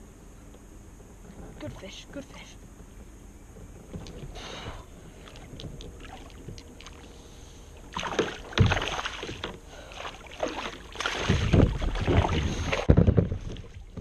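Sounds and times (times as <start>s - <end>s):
water splashing: 5.2s - 7.1s, 7.8s - 14.0s
knocks against small boat: 8.0s - 9.6s, 11.2s - 14.0s.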